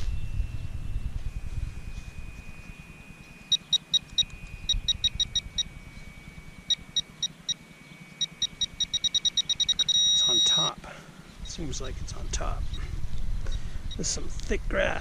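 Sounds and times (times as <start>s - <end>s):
pinpointer short high beeps: 2.9s - 10.8s.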